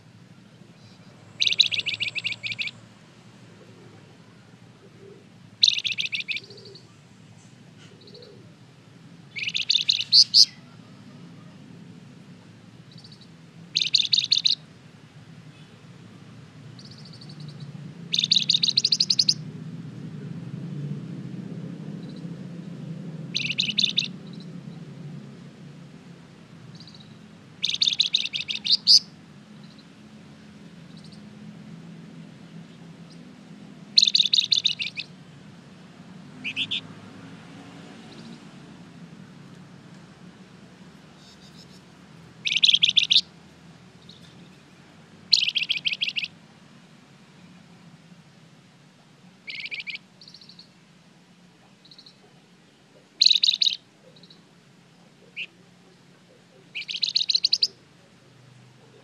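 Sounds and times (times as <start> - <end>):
songbird chattering: 0.8 - 2.8, 4.9 - 8.5, 9.3 - 10.8, 12.9 - 14.6, 16.7 - 19.4, 23.3 - 24.5, 26.7 - 29.9, 30.8 - 31.3, 33.9 - 35.2, 36.3 - 36.9, 41.2 - 43.3, 45.3 - 46.4, 49.4 - 50.8, 51.6 - 57.8.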